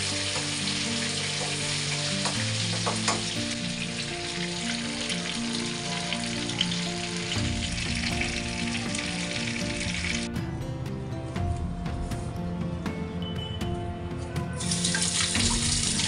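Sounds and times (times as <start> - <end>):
chicken frying in hot oil: 0.0 - 10.2, 14.6 - 16.0
background music: 0.0 - 16.0.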